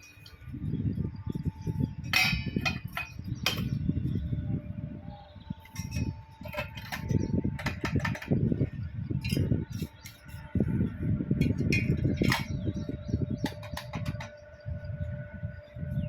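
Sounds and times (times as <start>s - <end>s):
metal parts scraping: 5.6s - 8.4s.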